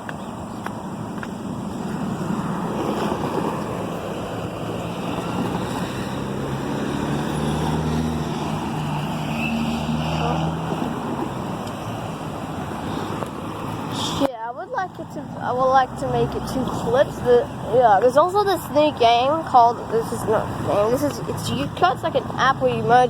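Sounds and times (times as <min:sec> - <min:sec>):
tyre and wind rush: 0:00.0 - 0:14.3
vehicle engine hum passing: 0:00.0 - 0:23.0.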